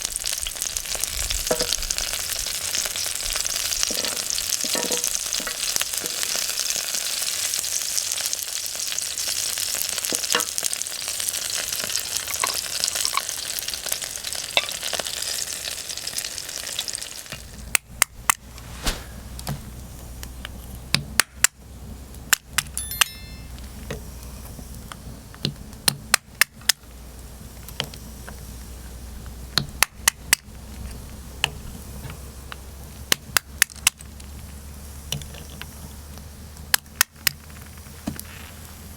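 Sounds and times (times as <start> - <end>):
food sizzling in a pan: 0.0 - 17.5.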